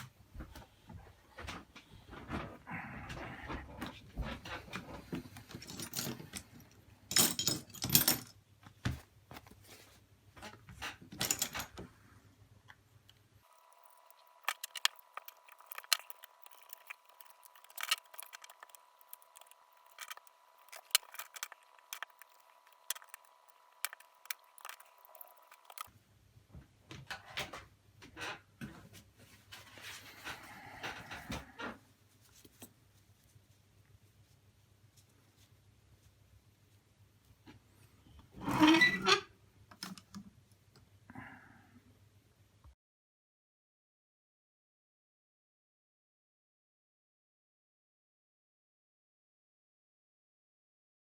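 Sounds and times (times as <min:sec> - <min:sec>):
tools clicking and clattering: 0:11.1 - 0:11.7, 0:13.5 - 0:25.9.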